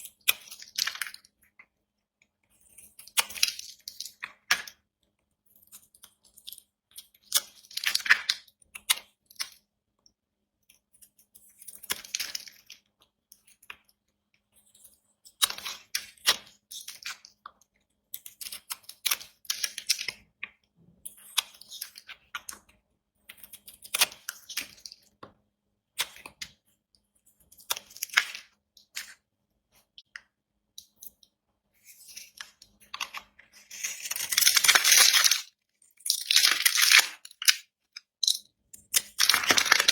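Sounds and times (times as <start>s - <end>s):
knife cutting bar soap: 10.6s - 39.9s.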